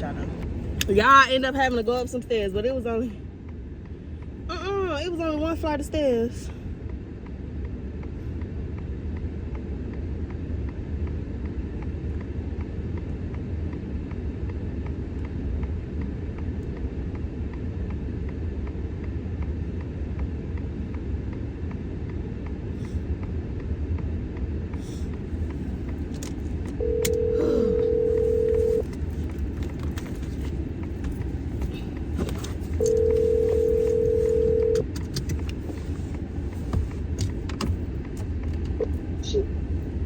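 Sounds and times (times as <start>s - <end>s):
car running rumble: 0.0s - 40.0s
telephone ringing tone: 26.8s - 28.9s, 32.8s - 34.8s.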